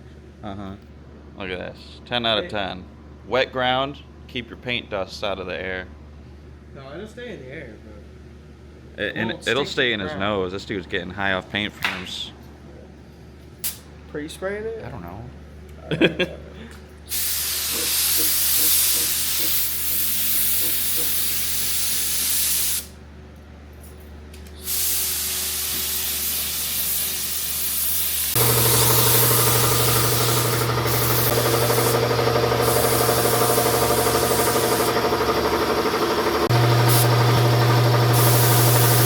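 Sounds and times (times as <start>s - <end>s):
paint spray gun hissing: 17.1s - 22.9s, 24.6s - 39.0s
machine hum: 28.2s - 39.0s.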